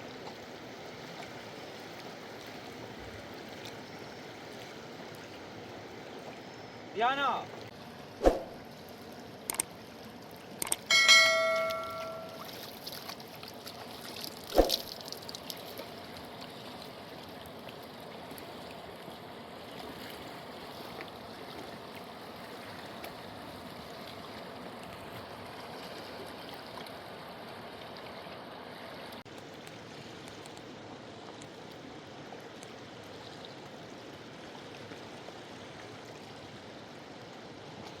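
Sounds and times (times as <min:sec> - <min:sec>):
brief metallic ring: 0:10.9 - 0:12.4.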